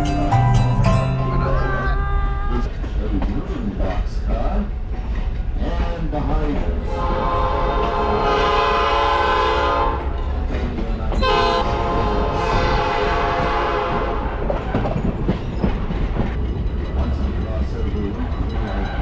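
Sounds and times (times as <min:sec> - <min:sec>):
train rumble and clatter: 0:00.0 - 0:19.0
train horn blasts: 0:06.8 - 0:10.2, 0:11.2 - 0:14.4.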